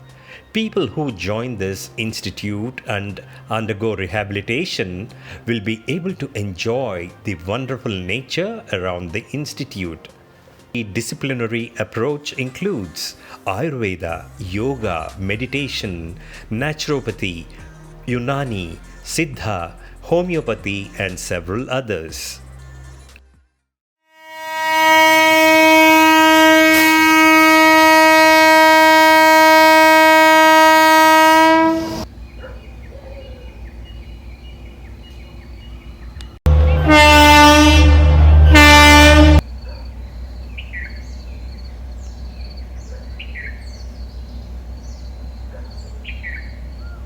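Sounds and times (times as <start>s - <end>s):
train horn blasts: 24.1s - 32.1s, 36.5s - 39.5s
low rumble: 36.2s - 39.4s.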